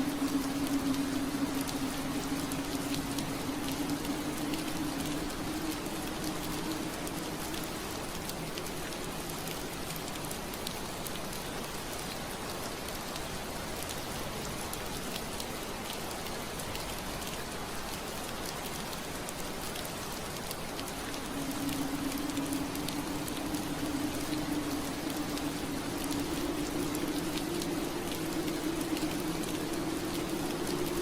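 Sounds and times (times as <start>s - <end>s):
low steady hum: 0.0s - 10.0s, 20.6s - 31.0s
rain on a window pane: 0.0s - 31.0s.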